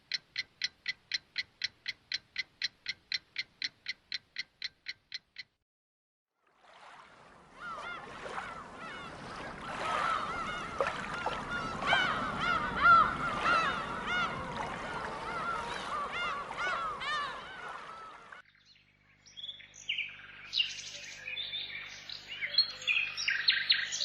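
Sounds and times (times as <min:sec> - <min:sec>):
flock of birds honking: 0:07.8 - 0:18.4.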